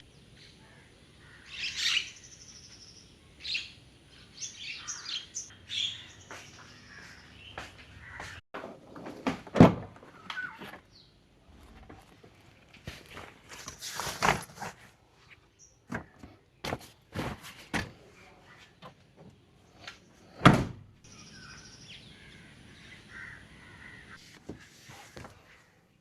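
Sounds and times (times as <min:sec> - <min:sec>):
birds chirping: 0:00.0 - 0:08.4, 0:10.1 - 0:11.8, 0:21.0 - 0:24.4.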